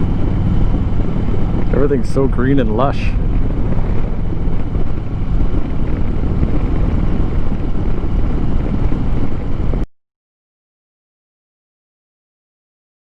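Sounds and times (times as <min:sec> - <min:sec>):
motorcycle engine running: 0:00.0 - 0:09.8
wind buffeting microphone: 0:00.0 - 0:09.9.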